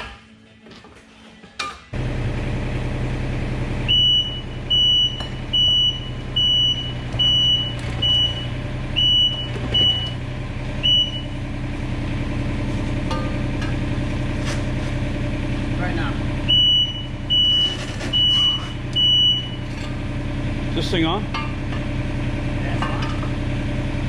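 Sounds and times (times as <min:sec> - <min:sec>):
diesel engine running: 0:01.9 - 0:24.0
backup alarm beeps: 0:03.9 - 0:10.2, 0:10.8 - 0:11.4, 0:16.5 - 0:19.7.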